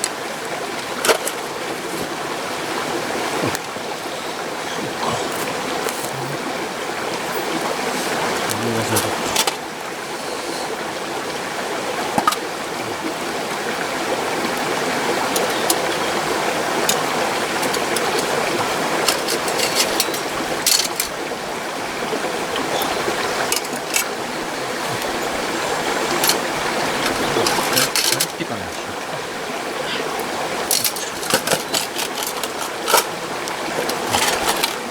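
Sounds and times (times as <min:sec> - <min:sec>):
mountain stream rushing: 0:00.0 - 0:34.9.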